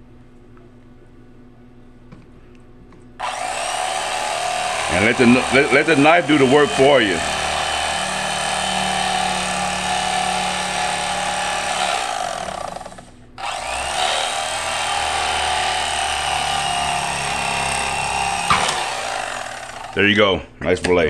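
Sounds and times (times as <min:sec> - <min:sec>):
electric fillet knife motor humming: 0:03.2 - 0:20.0.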